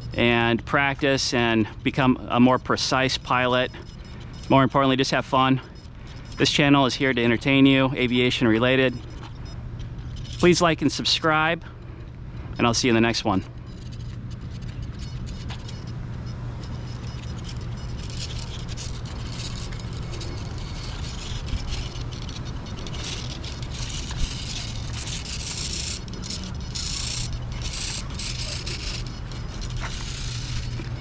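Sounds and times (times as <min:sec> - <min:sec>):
low engine hum: 0:05.6 - 0:31.0.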